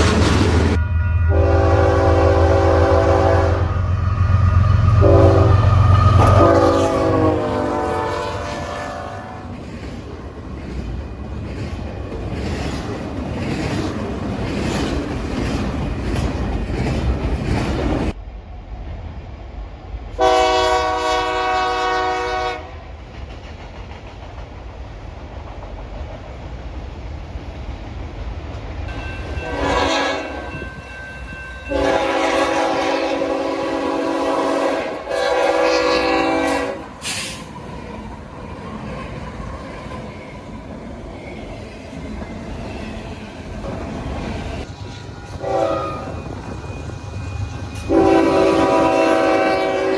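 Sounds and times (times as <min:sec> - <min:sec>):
train rumble: 0:00.0 - 0:49.9
train horn blasts: 0:00.7 - 0:09.5, 0:20.2 - 0:22.8, 0:28.9 - 0:37.4, 0:45.3 - 0:46.4, 0:47.8 - 0:49.9
wheels clacking over rail joints: 0:09.3 - 0:18.2.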